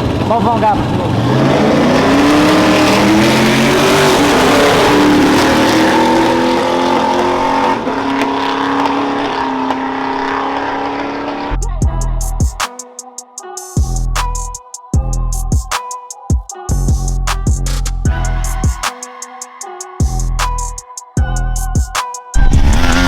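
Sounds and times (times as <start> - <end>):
vehicle engine revving: 0.0 - 11.8, 22.4 - 23.0
loud rush of noise: 22.4 - 23.0.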